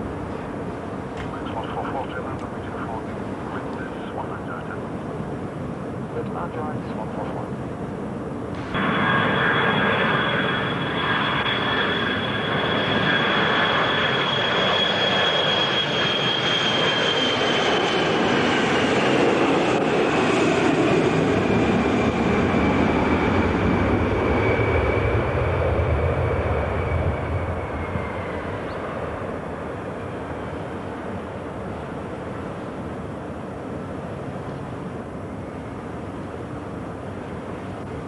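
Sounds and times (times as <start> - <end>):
jet engines passing by: 0.0 - 38.0.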